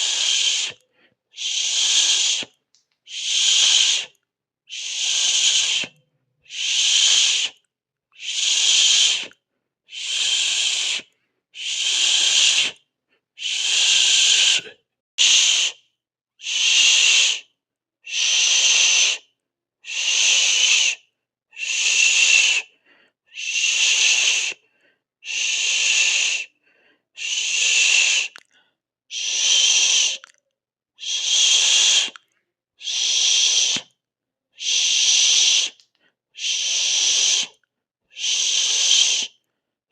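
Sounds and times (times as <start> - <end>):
person hissing through teeth: 0.0 - 0.8, 1.4 - 7.6, 8.2 - 12.8, 13.4 - 15.8, 16.4 - 17.5, 18.1 - 19.3, 19.9 - 21.0, 21.6 - 22.7, 23.3 - 24.6, 25.2 - 26.5, 27.2 - 28.5, 29.1 - 30.3, 31.0 - 32.2, 32.8 - 34.0, 34.6 - 35.8, 36.4 - 39.4.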